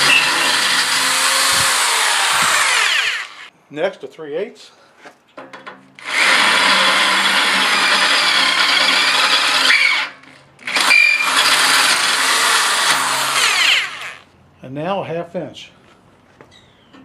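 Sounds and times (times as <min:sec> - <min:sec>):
drill bit squealing: 0:00.0 - 0:03.5, 0:10.7 - 0:14.1
power drill boring through steel: 0:00.0 - 0:03.5, 0:06.0 - 0:14.2.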